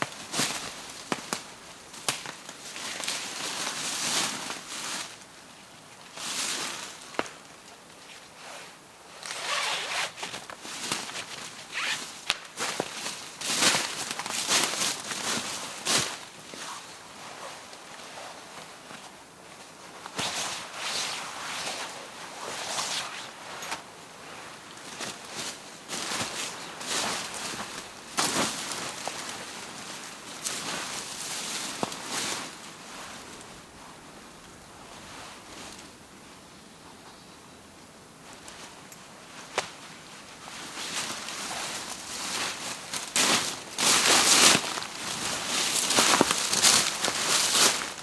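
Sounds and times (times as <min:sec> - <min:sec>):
dry wood snapping: 0:12.3 - 0:12.9
rustling: 0:20.0 - 0:35.9, 0:38.2 - 0:48.0.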